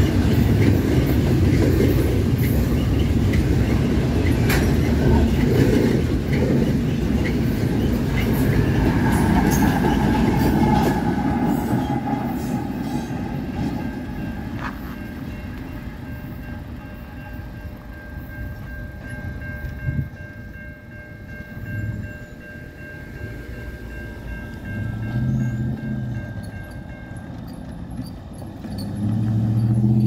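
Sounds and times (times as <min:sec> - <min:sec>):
crossing warning bell ringing: 0:00.0 - 0:30.0
freight train rumble: 0:00.0 - 0:30.0
cars driving over crossing: 0:23.0 - 0:30.0.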